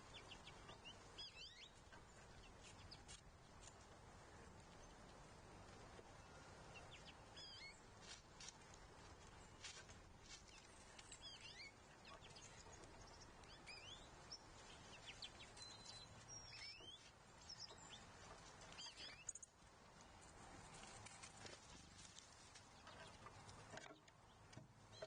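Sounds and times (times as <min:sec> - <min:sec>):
faint songbird chirps: 0:00.0 - 0:03.8, 0:06.1 - 0:08.0, 0:09.2 - 0:20.2
low outdoor background noise: 0:00.0 - 0:25.0.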